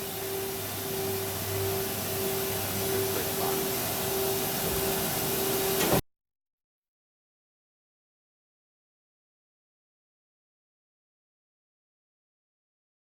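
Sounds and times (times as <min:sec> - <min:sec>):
circular saw whirring: 0:00.0 - 0:06.0.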